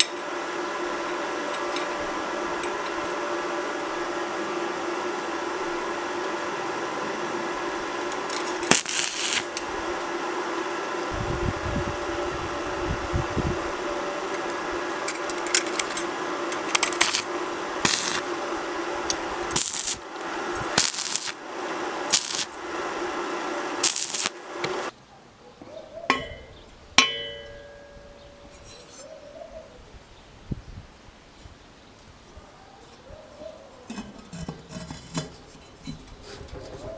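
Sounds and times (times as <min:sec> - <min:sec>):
small motor humming: 0:08.1 - 0:24.9
metal parts clanking: 0:16.6 - 0:17.2.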